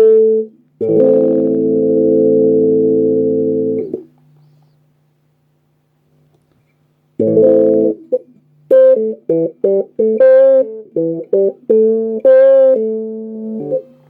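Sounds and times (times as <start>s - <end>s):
electric guitar with honky tone: 0.0s - 4.1s, 7.2s - 14.0s.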